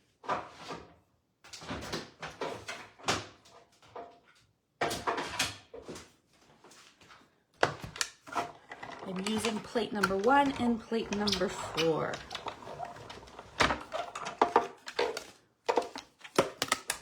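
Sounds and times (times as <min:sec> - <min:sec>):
plastic sliding and clacking: 0:07.6 - 0:17.0.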